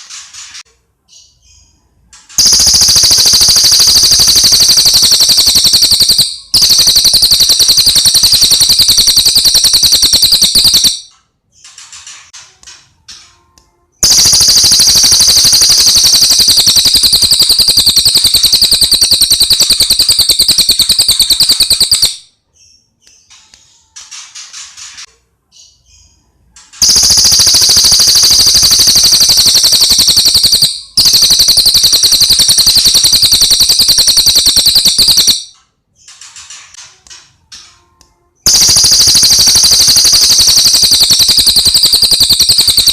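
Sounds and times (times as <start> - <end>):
bird high-pitched trill: 2.4 - 11.1, 14.0 - 22.3, 26.8 - 35.6, 38.5 - 42.9.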